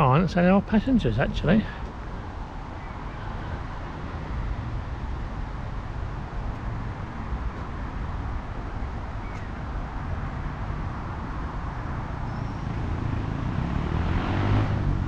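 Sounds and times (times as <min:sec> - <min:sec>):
distant road traffic rumble: 0:00.0 - 0:15.0.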